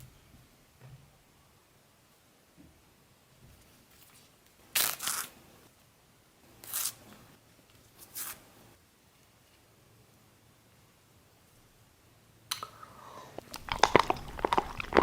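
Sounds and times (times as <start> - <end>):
crisp tearing sounds: 4.7 - 5.3, 13.4 - 15.0.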